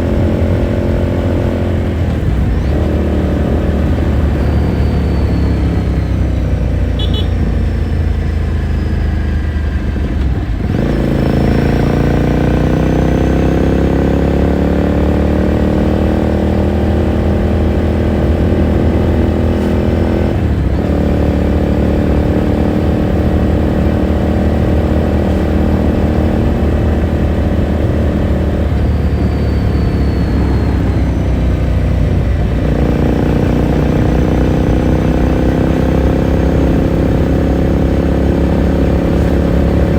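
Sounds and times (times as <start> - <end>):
motorcycle engine shifting up gears: 0.0 - 39.9.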